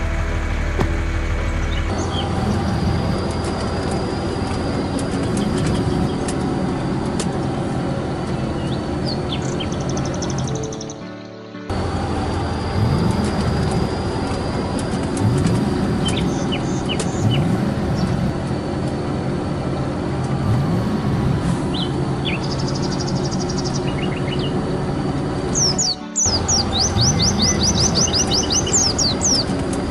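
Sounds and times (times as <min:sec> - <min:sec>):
vehicle engine revving: 0:00.0 - 0:10.7, 0:11.7 - 0:29.9
bird chirps: 0:08.4 - 0:11.5, 0:15.2 - 0:18.3, 0:21.7 - 0:29.9.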